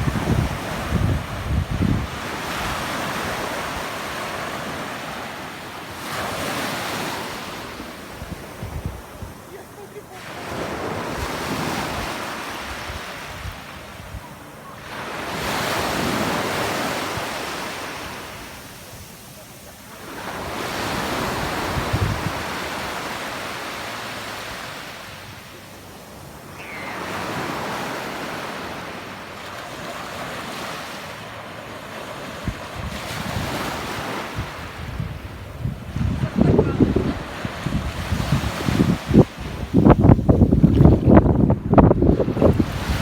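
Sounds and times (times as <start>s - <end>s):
wind buffeting microphone: 0.0s - 4.0s, 7.8s - 9.7s, 20.4s - 22.7s, 32.4s - 43.0s
sea waves breaking: 0.0s - 43.0s.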